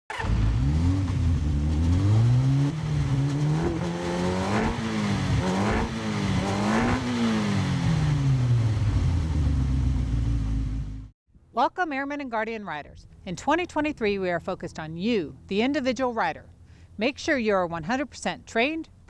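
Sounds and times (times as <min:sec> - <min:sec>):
motorcycle engine pulling hard: 0:00.1 - 0:10.9.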